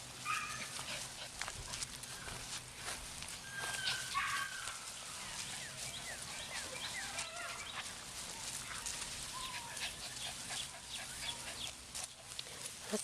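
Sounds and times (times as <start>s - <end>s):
puppies scuffling in play: 0.2s - 13.0s
puppies squeaking and whimpering: 3.4s - 11.9s.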